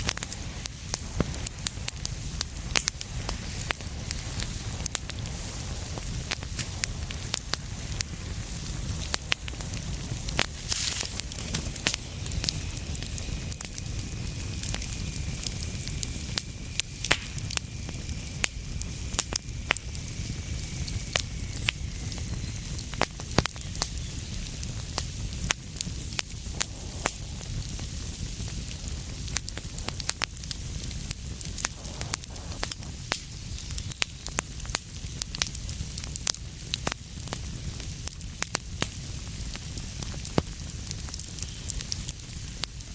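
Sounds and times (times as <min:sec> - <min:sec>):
fire low rumble and hiss: 0:00.0 - 0:42.9
wood fire crackling and popping: 0:00.0 - 0:42.9.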